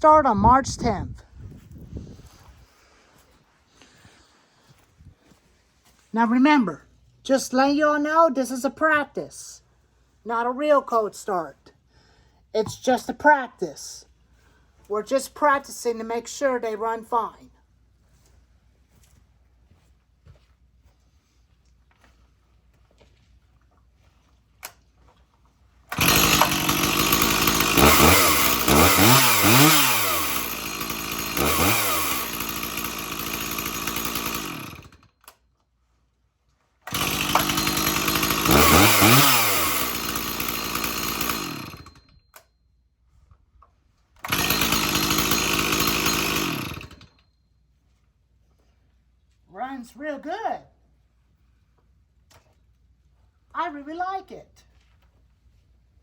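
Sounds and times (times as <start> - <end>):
chainsaw engine blipping: 25.9 - 35.4, 36.9 - 42.5, 44.2 - 47.3.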